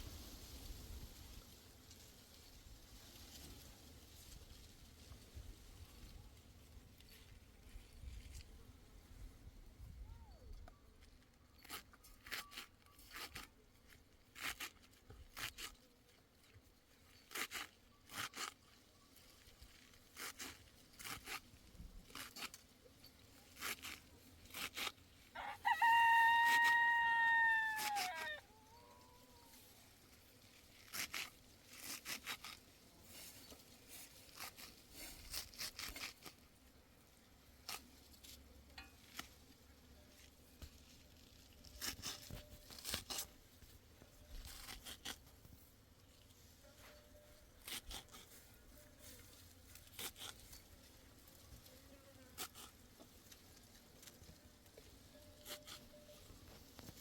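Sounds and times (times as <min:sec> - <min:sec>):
rooster crowing: 0:25.4 - 0:29.4.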